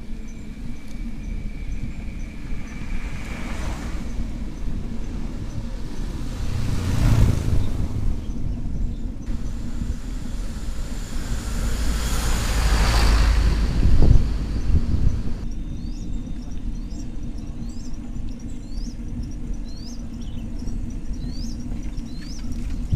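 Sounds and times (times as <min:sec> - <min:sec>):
road traffic rumble: 0:00.0 - 0:15.4
vehicles passing by: 0:01.4 - 0:15.4.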